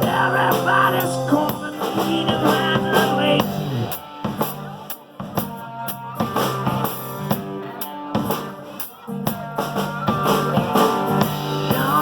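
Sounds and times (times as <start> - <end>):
person singing: 0.0 - 4.9, 7.6 - 12.0
blues-rock band playing: 0.0 - 12.0.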